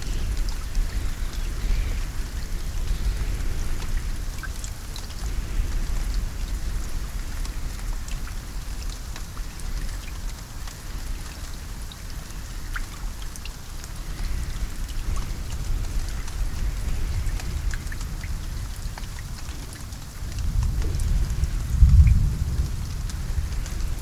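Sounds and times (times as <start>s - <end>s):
rain drops ticking: 0.0s - 24.0s
deep low rumble: 20.3s - 24.0s.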